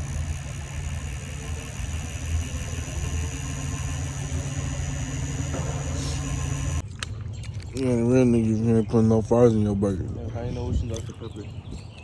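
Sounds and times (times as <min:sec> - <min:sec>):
car engine idling: 0:00.0 - 0:06.8.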